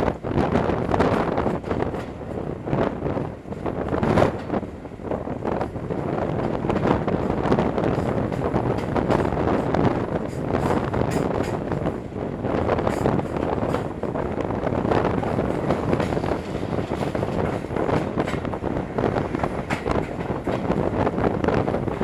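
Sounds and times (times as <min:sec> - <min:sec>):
train wheels rumbling on track: 0:00.0 - 0:22.0
wind buffeting microphone: 0:00.0 - 0:22.0.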